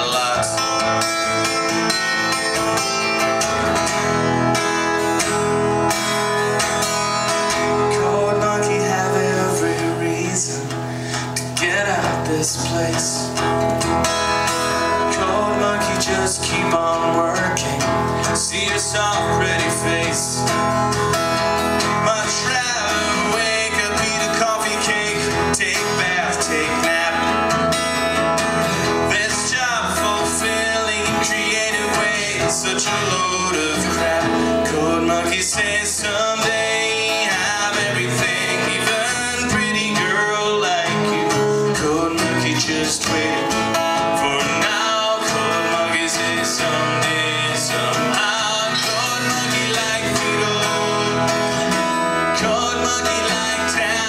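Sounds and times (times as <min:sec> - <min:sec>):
live band instrumental with guitar: 0:00.0 - 0:54.0.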